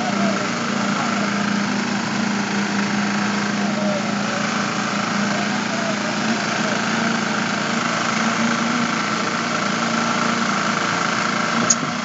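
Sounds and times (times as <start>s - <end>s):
construction machine engine running: 0.0s - 12.0s
sharp click: 11.6s - 11.9s.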